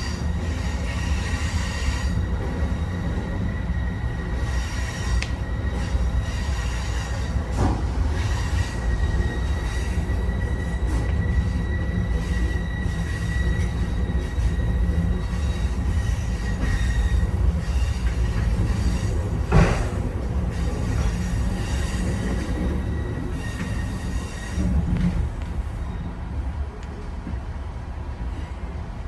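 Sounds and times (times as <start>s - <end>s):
high wheel squeal: 0.0s - 26.3s
train wheels rumbling on rails: 0.0s - 29.0s
train knock: 15.7s - 22.8s.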